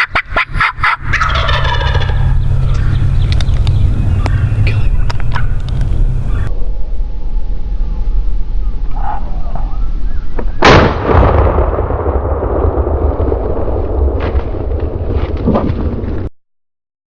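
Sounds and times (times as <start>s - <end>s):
steady low rumble: 0.0s - 8.9s, 11.0s - 15.4s
light clicks: 2.4s - 6.5s
gunshot ringing out: 10.6s - 14.5s.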